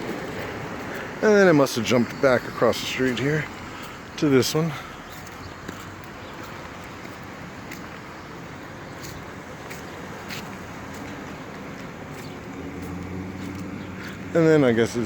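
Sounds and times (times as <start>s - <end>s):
engine running with low hum: 9.4s - 15.0s.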